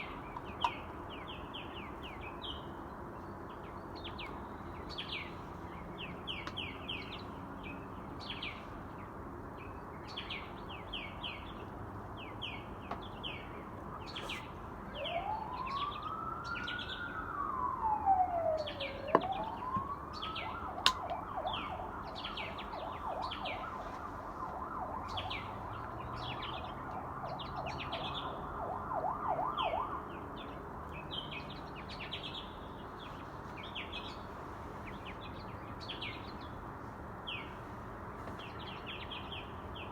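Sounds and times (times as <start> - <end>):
small birds chirping: 0.0 - 39.9
emergency vehicle siren: 14.8 - 31.4.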